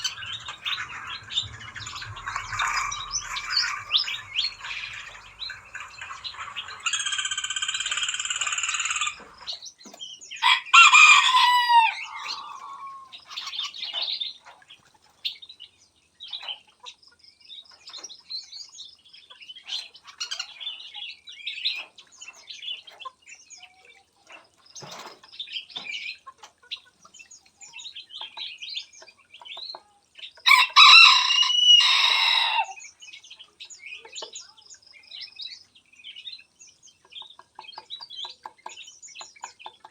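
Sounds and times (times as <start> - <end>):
small birds chirping: 0.0 - 30.8, 31.7 - 39.9
rooster crowing: 10.4 - 13.1, 30.5 - 32.8.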